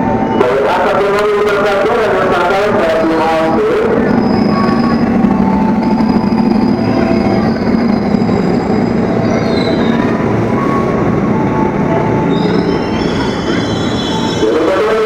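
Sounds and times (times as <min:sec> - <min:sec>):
train rumbling along rails: 0:00.0 - 0:15.0
high-pitched wheel squeal: 0:03.3 - 0:11.4, 0:12.2 - 0:15.0.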